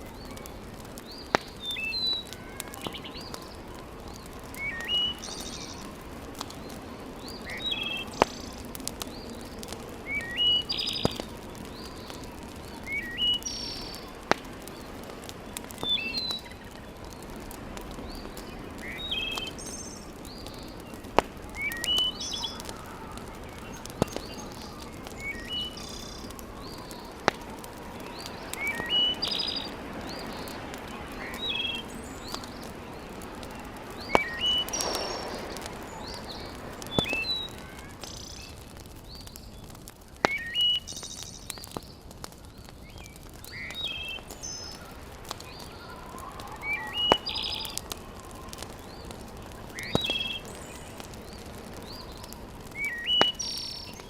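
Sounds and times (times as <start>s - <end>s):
birds chirping: 0.0s - 54.0s
wood fire pops: 0.0s - 54.0s
steady low hiss: 2.9s - 45.4s.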